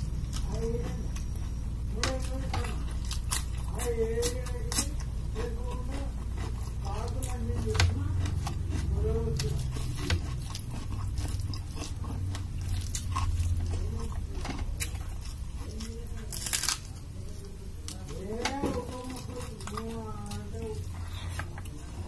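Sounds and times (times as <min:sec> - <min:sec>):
chewing and crunching food: 0:00.0 - 0:22.0
steady low hum: 0:00.0 - 0:22.0
loud crunch of onion bite: 0:08.1 - 0:17.1.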